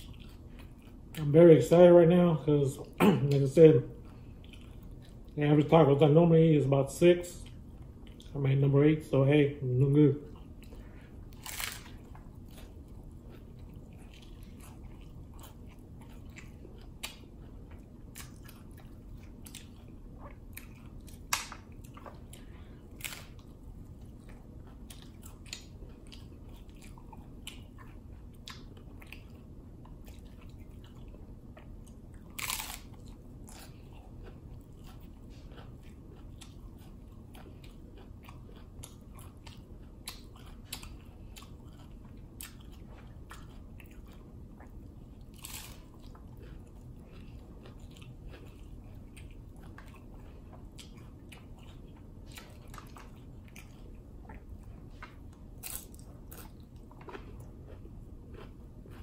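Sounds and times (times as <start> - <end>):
taco shell crunching: 10.6 - 31.2, 32.0 - 44.6, 45.2 - 54.0, 58.3 - 59.0.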